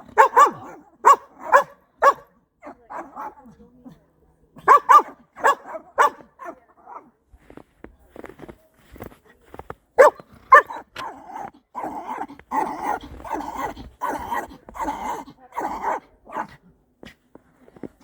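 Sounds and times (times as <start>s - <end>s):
dog barking: 0.0s - 3.4s, 4.6s - 7.0s, 10.0s - 16.6s.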